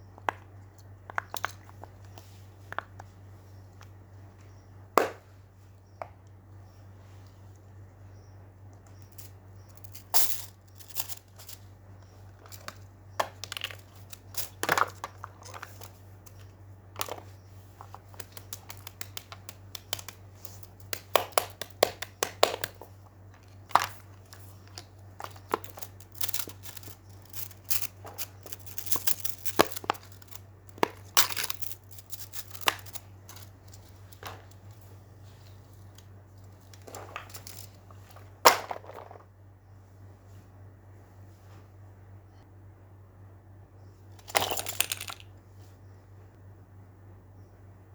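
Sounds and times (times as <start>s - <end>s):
steady low hum: 0.0s - 47.9s
small objects clicking: 8.8s - 34.7s, 44.2s - 45.3s
crinkly rustles: 23.5s - 38.3s.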